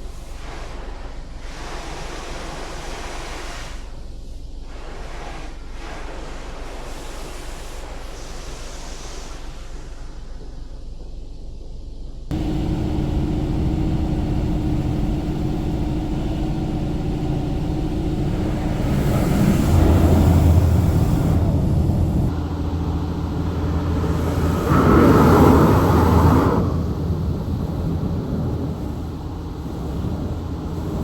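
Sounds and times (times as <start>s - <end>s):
car engine and road noise: 12.3s - 31.0s.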